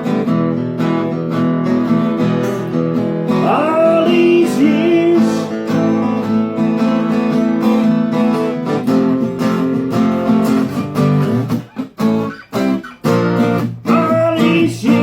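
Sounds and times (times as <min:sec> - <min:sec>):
acoustic guitars strumming: 0:00.0 - 0:15.0
person singing: 0:03.3 - 0:06.3, 0:13.8 - 0:15.0.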